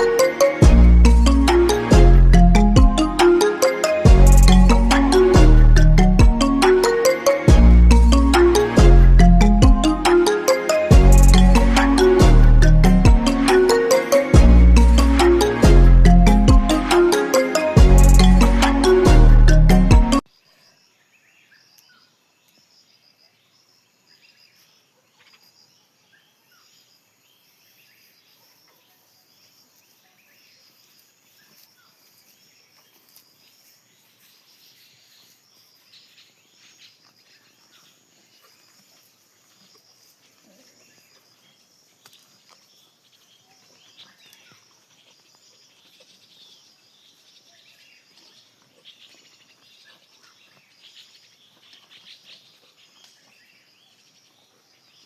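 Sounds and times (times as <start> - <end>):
insects chirping high-pitched pulse: 0.0 - 20.3.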